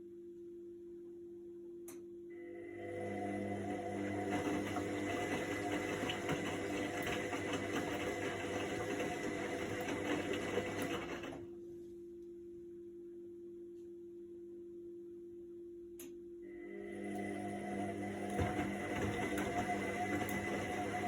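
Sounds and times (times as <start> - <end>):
washing machine drum whirring: 2.6 - 11.6, 16.6 - 21.0
low steady hum: 11.4 - 17.9.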